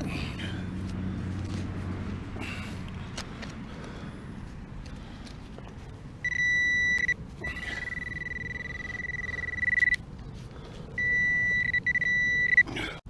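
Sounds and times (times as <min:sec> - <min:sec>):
metal detector beeping: 0:06.2 - 0:10.0, 0:11.0 - 0:12.7.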